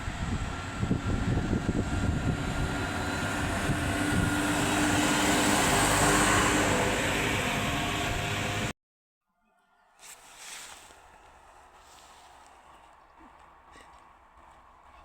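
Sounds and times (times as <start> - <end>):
train steady whine: 0.0 - 8.7.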